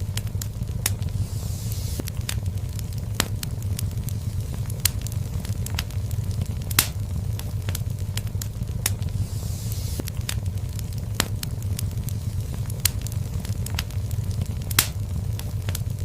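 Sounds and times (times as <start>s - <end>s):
faint hiss: 0.0s - 16.0s
fire crackling and popping: 0.0s - 16.0s
low rumble of flames: 0.0s - 16.0s.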